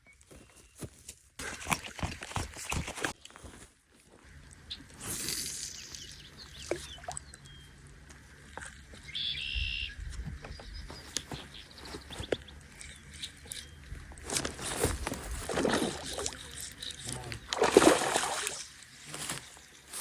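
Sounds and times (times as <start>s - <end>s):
birds chirping: 8.9s - 14.2s.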